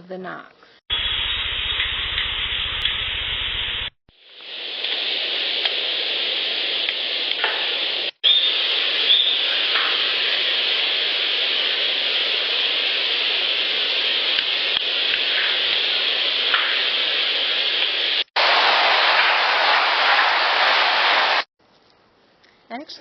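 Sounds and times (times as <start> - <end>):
low buzz: 0.9 - 4.0
loud steady hiss: 0.9 - 21.5.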